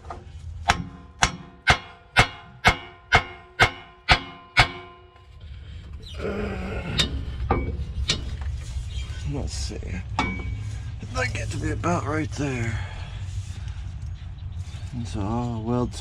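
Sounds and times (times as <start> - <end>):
hammer striking metal pipe: 0.6 - 5.3, 10.2 - 10.6
scraping shifting noise: 7.0 - 16.0.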